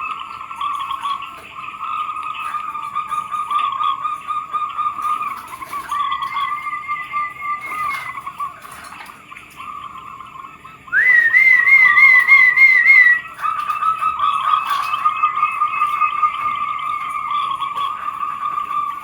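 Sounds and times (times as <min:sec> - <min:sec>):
doves cooing: 0:00.0 - 0:19.0
warbling bird call: 0:01.7 - 0:08.7, 0:10.9 - 0:19.0.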